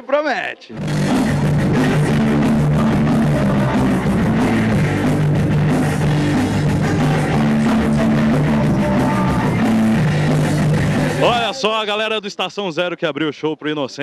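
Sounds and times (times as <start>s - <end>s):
drum kit: 0.7s - 11.6s
distorted electric guitars: 0.7s - 11.8s.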